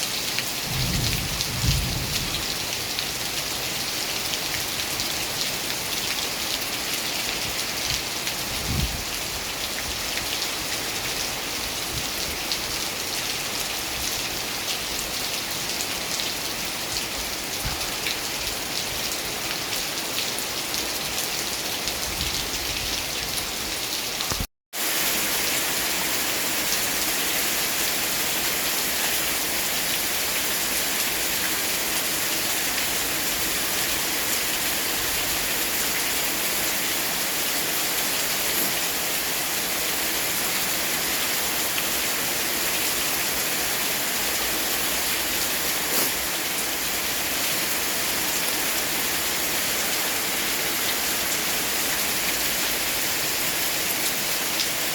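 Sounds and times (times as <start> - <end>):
steady rain hissing: 24.4 - 54.9.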